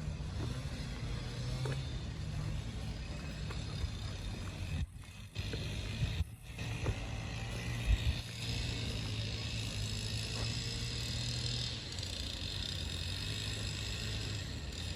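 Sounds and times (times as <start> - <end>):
low mechanical hum: 0.0 - 14.9.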